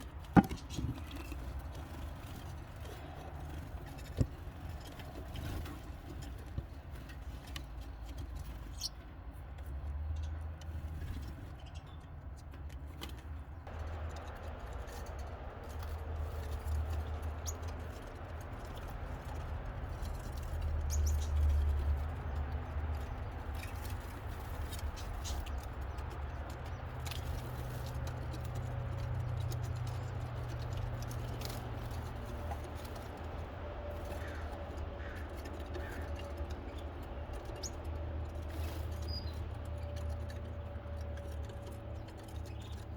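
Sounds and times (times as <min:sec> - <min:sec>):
nestling birds cheeping: 0:08.5 - 0:09.1, 0:13.6 - 0:42.9.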